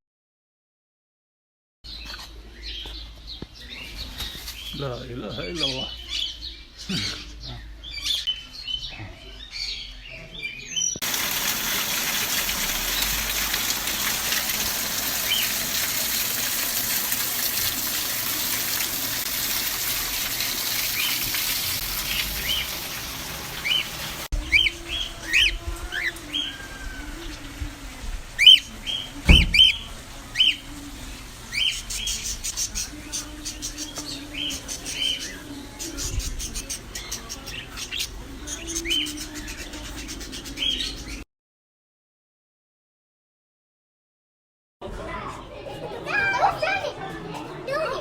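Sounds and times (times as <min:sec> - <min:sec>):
small birds chirping: 0:01.9 - 0:18.4, 0:19.3 - 0:27.4, 0:28.4 - 0:30.9, 0:31.5 - 0:41.2
loud knock: 0:29.3 - 0:29.7.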